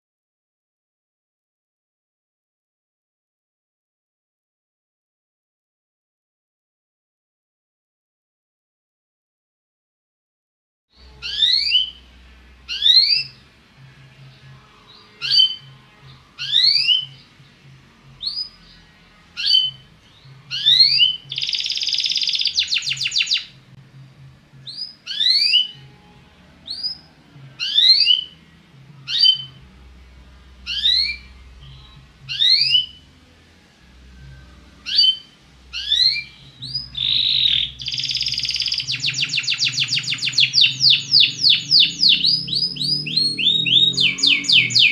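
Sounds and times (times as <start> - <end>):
canary buzzy trill: 11.0 - 23.7, 24.6 - 33.3, 34.0 - 44.9
canary whistled notes: 11.2 - 12.0, 20.5 - 23.5, 24.7 - 25.8, 26.7 - 28.4, 30.7 - 33.0, 34.8 - 44.9.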